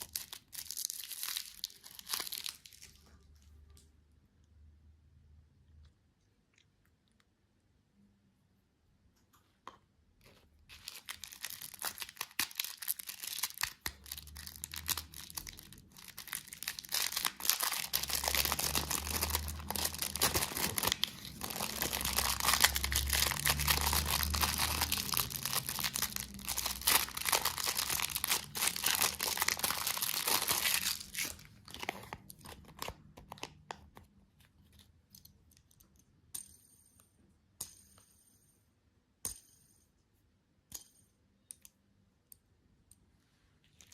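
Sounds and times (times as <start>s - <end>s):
packaging tearing and crinkling: 0.0s - 3.0s, 10.7s - 33.6s.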